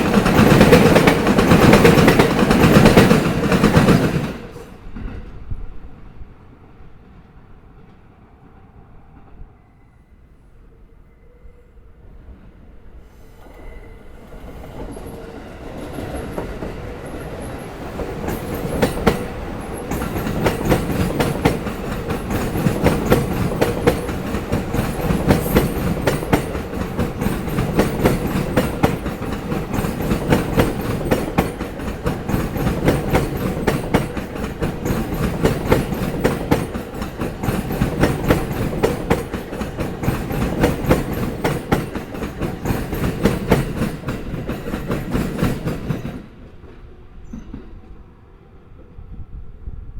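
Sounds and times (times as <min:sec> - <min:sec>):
train wheels clattering over rail joints: 0:00.0 - 0:04.5, 0:14.7 - 0:46.4.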